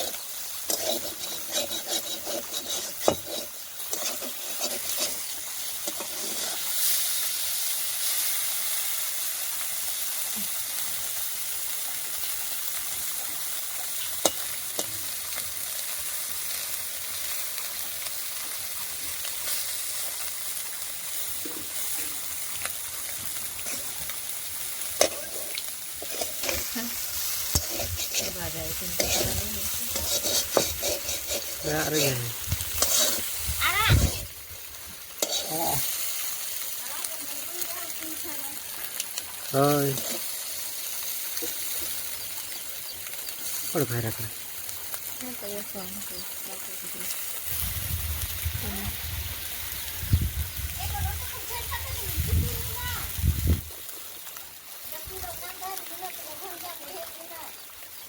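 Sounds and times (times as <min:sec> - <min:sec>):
stirring scrapes in pan: 0:00.0 - 0:09.0, 0:13.8 - 0:16.6, 0:21.1 - 0:36.8, 0:38.9 - 0:43.7
fish sizzling in hot oil: 0:00.0 - 0:58.0.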